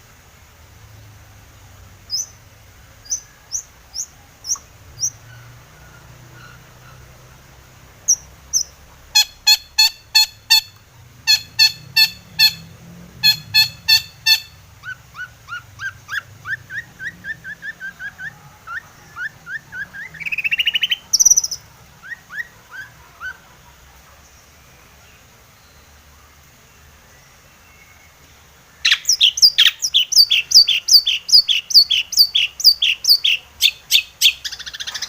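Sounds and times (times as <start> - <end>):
shrike singing: 8.0 - 23.4, 28.8 - 35.0.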